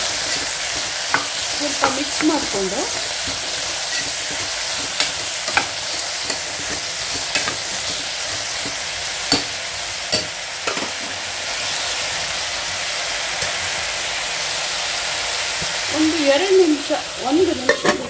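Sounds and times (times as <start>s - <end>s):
spoon stirring and scraping pot: 0.0s - 11.1s
food sizzling in hot oil: 0.0s - 18.0s.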